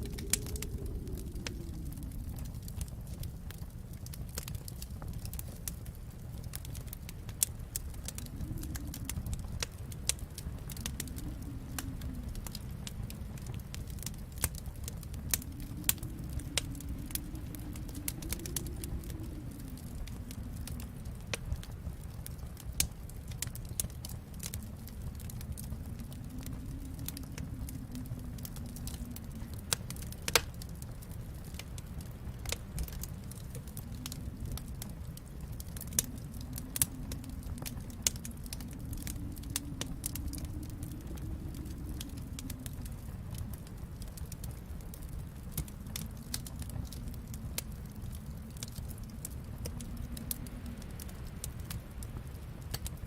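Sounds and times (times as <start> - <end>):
steady low rumble: 0.0 - 53.0
wood fire crackling: 0.0 - 53.0.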